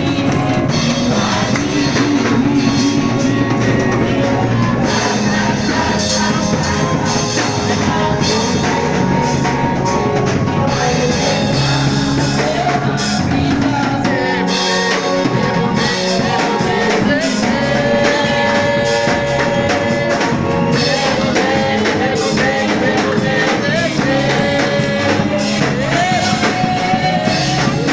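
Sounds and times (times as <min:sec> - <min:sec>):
band music with drum kit: 0:00.0 - 0:27.9
person singing long notes: 0:00.0 - 0:27.9.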